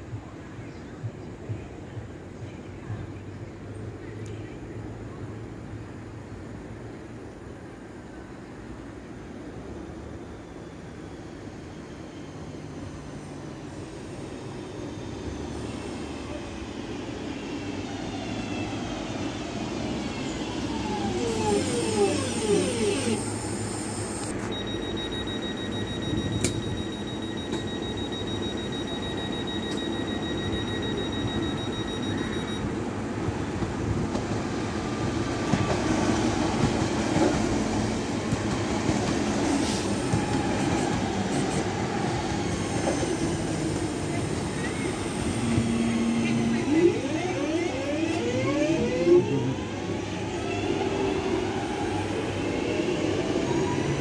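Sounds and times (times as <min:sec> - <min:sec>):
electric train running past: 0:07.6 - 0:54.0
electric train braking with motor whine: 0:17.8 - 0:32.6, 0:39.5 - 0:54.0.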